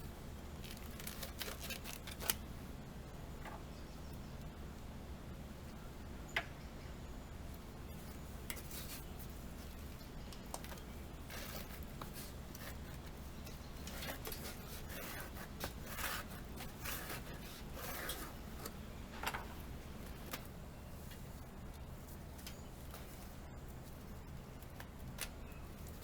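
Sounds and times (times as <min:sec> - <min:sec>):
steady low hum: 0:00.0 - 0:26.0
hand tools scraping and clicking: 0:08.5 - 0:09.1, 0:10.3 - 0:19.6.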